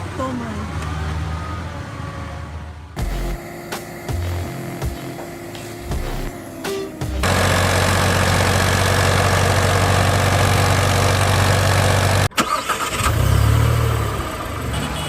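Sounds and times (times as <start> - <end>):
tractor engine running: 3.0 - 12.9
engine running: 3.0 - 14.6.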